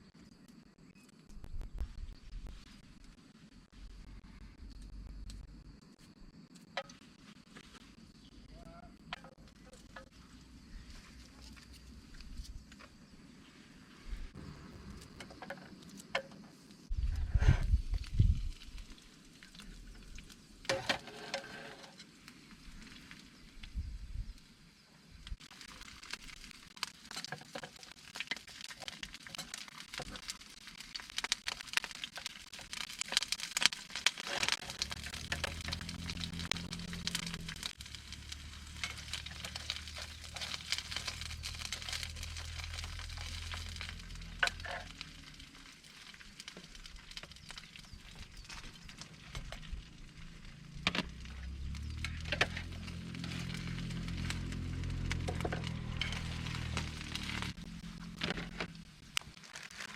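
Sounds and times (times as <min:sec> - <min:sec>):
food sizzling in a pan: 0:25.5 - 0:49.4, 0:51.5 - 0:58.2.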